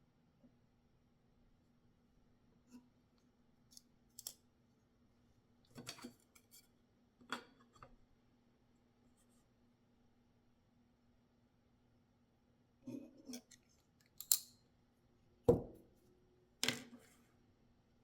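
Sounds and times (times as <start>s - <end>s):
knife metallic clicks and snaps: 14.0s - 14.6s.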